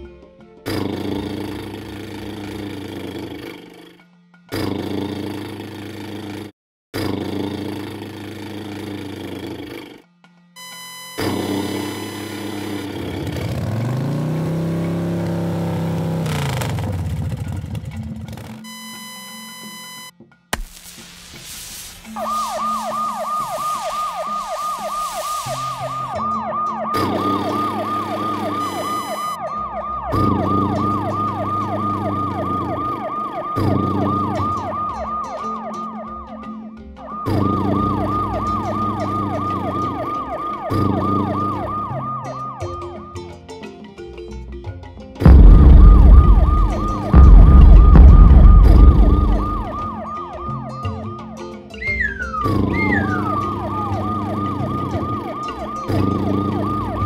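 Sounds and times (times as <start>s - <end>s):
siren yelp: 10.6s - 17.5s, 18.6s - 20.1s, 22.0s - 43.2s, 45.2s - 57.0s
loud low rumble: 45.3s - 49.8s.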